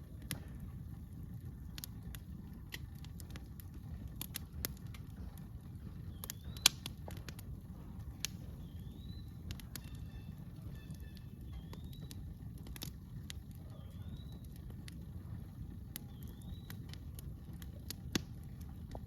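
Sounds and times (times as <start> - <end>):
campfire crackling: 0.0 - 19.0
bird chirping: 5.9 - 7.2, 8.4 - 12.4, 13.6 - 14.7, 16.0 - 17.0.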